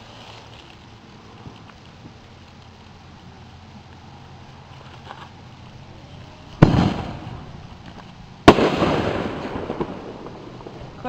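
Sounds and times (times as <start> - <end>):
loud firework bangs: 6.5 - 11.0.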